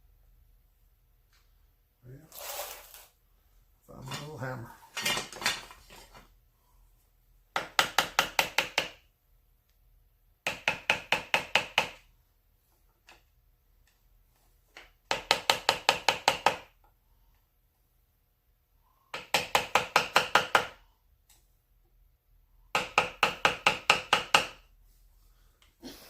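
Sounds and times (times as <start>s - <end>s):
small hammer tapping: 7.5s - 9.1s, 10.4s - 12.1s, 14.7s - 16.7s, 19.1s - 21.4s, 22.7s - 24.6s.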